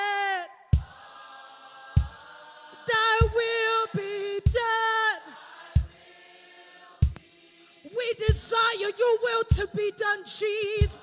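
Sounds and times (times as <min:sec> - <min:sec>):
voices singing: 0:00.0 - 0:11.0
deep kick drum beat: 0:00.8 - 0:01.0, 0:02.0 - 0:02.2, 0:03.2 - 0:03.5, 0:04.5 - 0:04.7, 0:05.8 - 0:06.0, 0:08.3 - 0:08.5, 0:09.5 - 0:09.7, 0:10.8 - 0:11.0.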